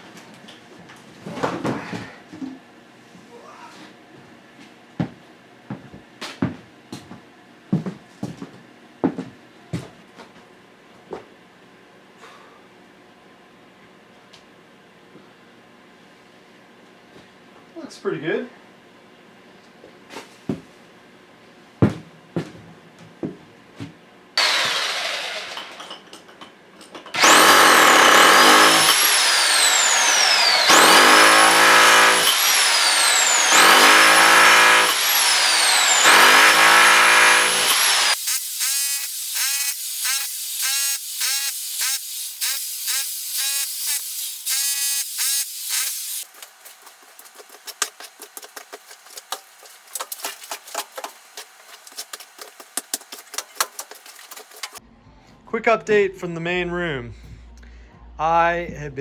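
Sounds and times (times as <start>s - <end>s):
power tool running: 24.4s - 26.0s, 27.2s - 54.8s.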